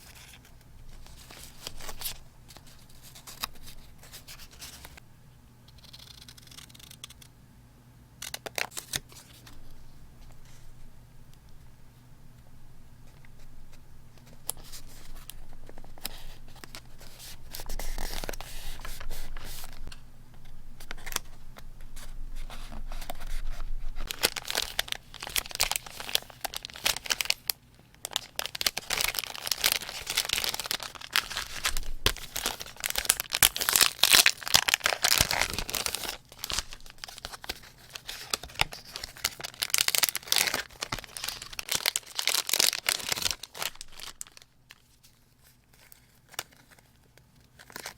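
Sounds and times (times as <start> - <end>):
paper tearing and crinkling: 22.9 - 44.8.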